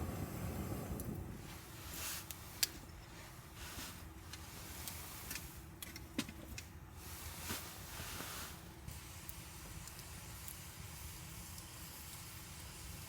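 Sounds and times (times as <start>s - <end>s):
soft fire hiss: 0.0s - 13.0s
campfire snapping: 2.2s - 2.8s, 9.2s - 10.6s.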